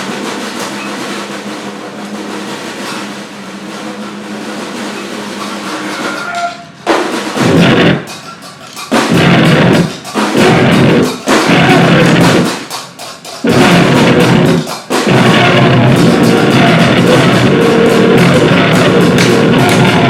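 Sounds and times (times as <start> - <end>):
loud drumming blasts: 0.0 - 20.0
dense noise wash: 13.4 - 20.0
low drone: 13.5 - 20.0.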